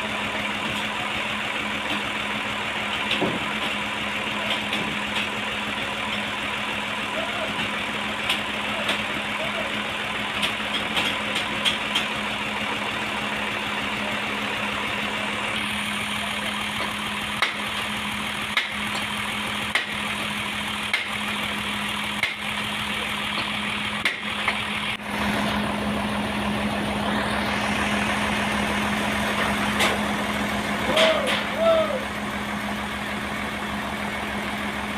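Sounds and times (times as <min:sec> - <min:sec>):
sawmill engine humming: 0:00.0 - 0:34.9.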